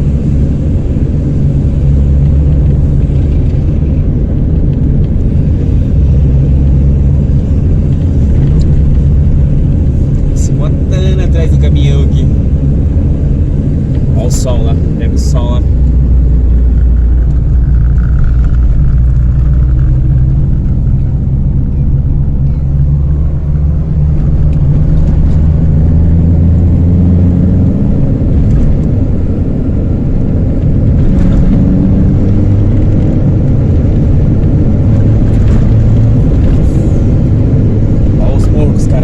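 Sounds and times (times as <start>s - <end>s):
car engine loud low drone: 0.0s - 39.0s.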